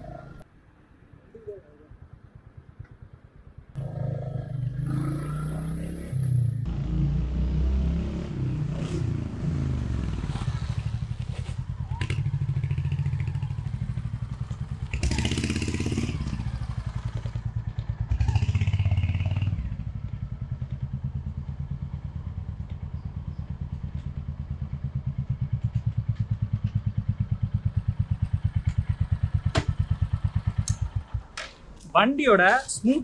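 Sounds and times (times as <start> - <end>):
motorcycle engine thumping: 23.6 - 31.7.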